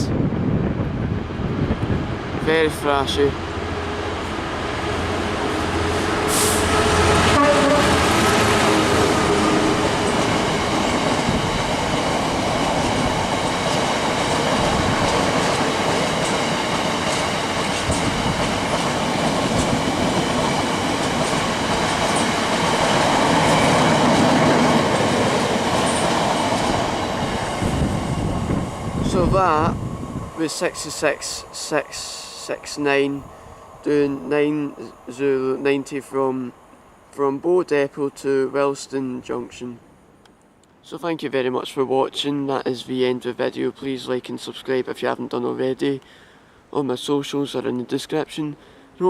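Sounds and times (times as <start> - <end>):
diesel locomotive engine: 0.0 - 37.2.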